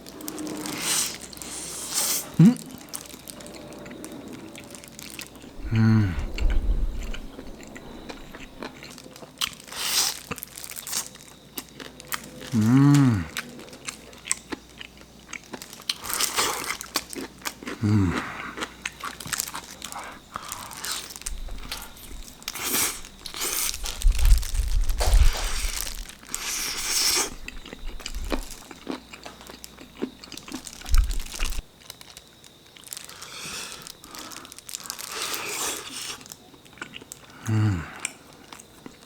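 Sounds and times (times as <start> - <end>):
crunchy bites and chewing: 0.1 - 39.0.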